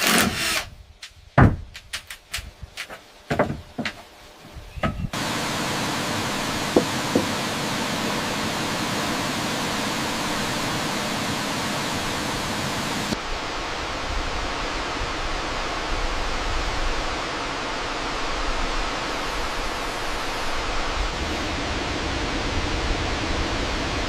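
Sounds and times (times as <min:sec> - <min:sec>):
waterfall rushing: 0:05.2 - 0:13.8.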